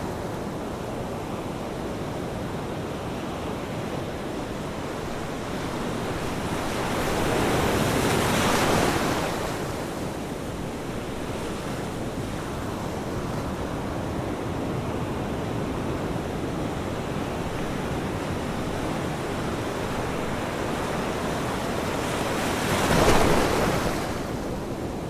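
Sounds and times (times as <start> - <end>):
ocean waves breaking: 4.0 - 14.2, 15.5 - 25.0.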